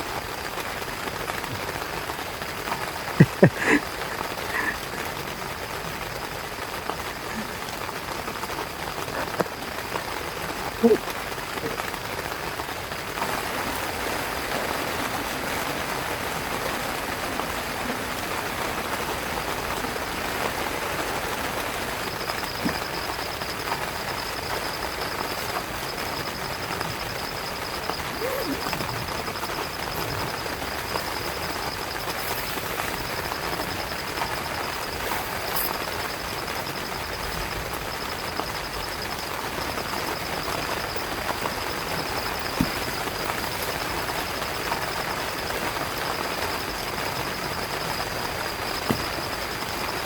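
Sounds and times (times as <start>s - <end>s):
heavy rain on a tent: 0.0s - 50.0s
faint high pulsing trill: 19.4s - 50.0s.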